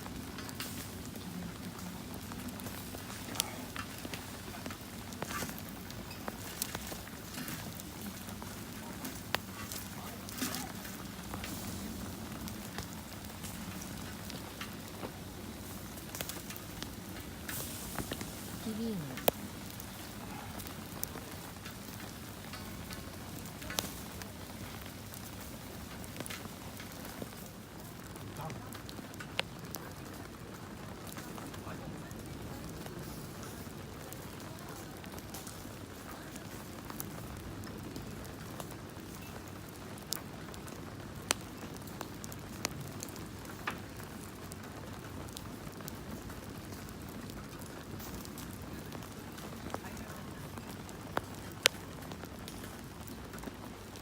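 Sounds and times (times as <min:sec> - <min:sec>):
campfire crackling: 0:00.0 - 0:54.0
fire popping: 0:00.0 - 0:54.0
rain patter: 0:00.0 - 0:54.0.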